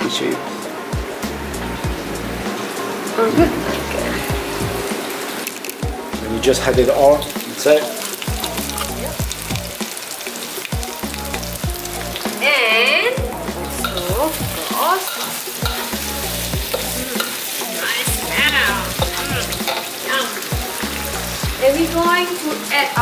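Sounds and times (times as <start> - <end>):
meat sizzling in a wok: 0.0 - 23.0
metal spatula scraping a pan: 13.8 - 20.5.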